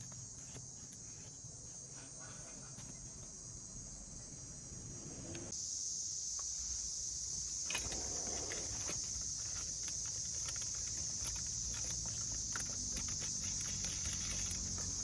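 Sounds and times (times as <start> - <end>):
insects chirring: 0.0 - 15.0
handling knock and rustle: 7.5 - 15.0.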